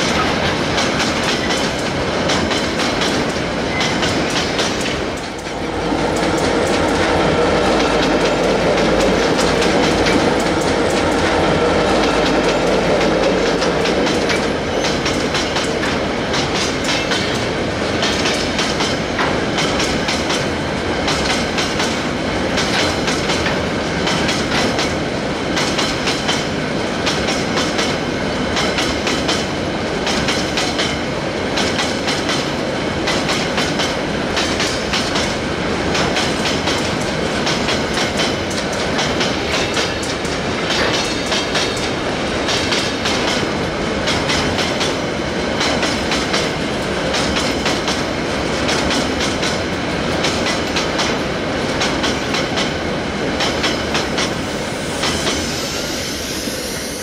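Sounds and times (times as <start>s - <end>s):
steel wheels clattering over rail joints: 0.0s - 55.5s
freight train rolling past: 0.0s - 57.0s.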